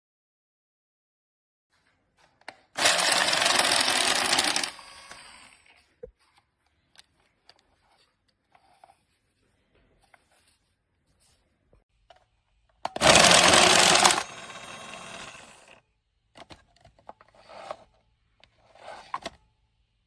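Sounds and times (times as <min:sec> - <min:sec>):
card shuffler whirring: 0:02.7 - 0:05.7, 0:12.8 - 0:15.8, 0:18.6 - 0:19.4
motor whining: 0:13.0 - 0:15.8.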